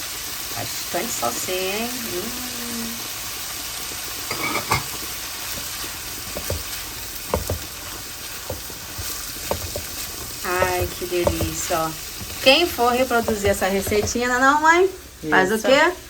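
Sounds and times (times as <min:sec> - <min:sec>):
food sizzling in a frying pan: 0:00.0 - 0:16.0
utensil scraping a pan: 0:04.3 - 0:14.5.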